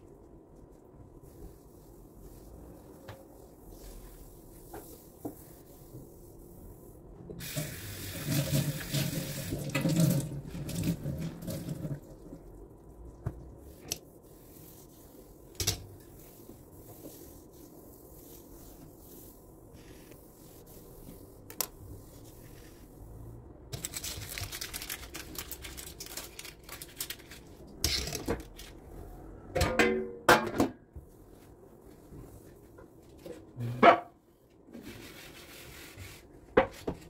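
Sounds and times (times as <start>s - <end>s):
tap water running into sink: 7.4s - 12.2s.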